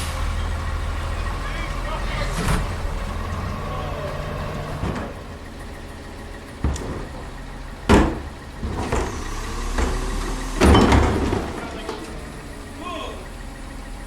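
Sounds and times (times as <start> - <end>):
truck engine idling: 0.0 - 14.0
sharp knocks: 6.5 - 12.2.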